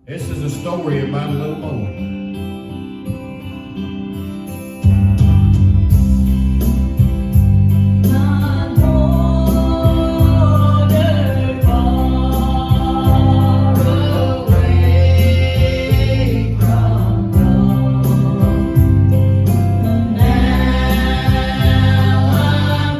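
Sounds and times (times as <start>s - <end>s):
strong bass line: 5.0s - 22.9s
voices singing gospel song: 8.1s - 22.9s.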